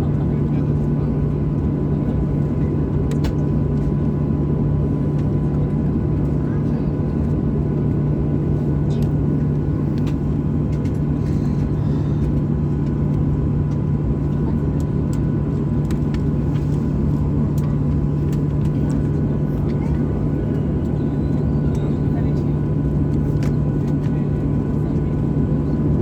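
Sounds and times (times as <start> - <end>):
aircraft cabin engine rumble: 0.0 - 26.0.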